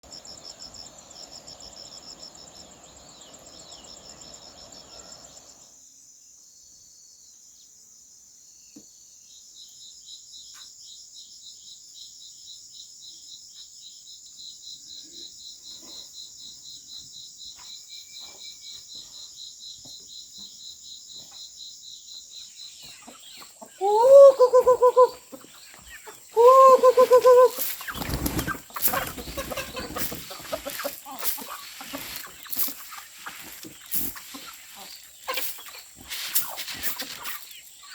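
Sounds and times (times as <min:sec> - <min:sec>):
insects trilling: 0:00.0 - 0:06.2, 0:09.2 - 0:37.9
loud rising calls: 0:23.8 - 0:25.3, 0:26.3 - 0:35.8.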